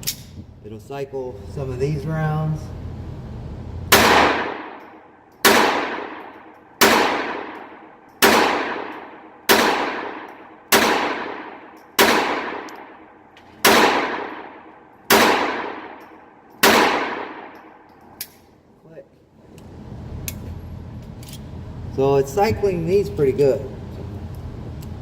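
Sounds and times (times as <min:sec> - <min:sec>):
pistol shots: 0:03.9 - 0:17.8.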